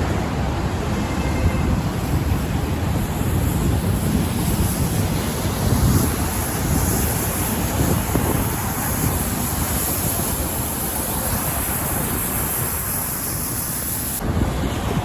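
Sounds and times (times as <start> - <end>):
road traffic: 0.0 - 15.0
wind buffeting microphone: 0.0 - 15.0.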